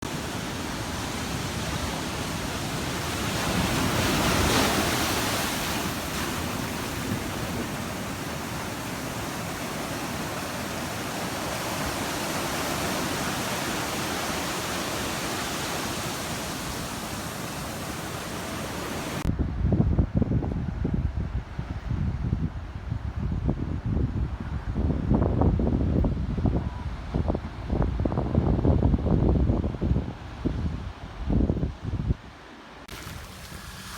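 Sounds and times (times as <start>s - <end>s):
waves breaking on beach: 0.0s - 19.3s, 32.8s - 33.9s
wind buffeting microphone: 0.1s - 32.3s.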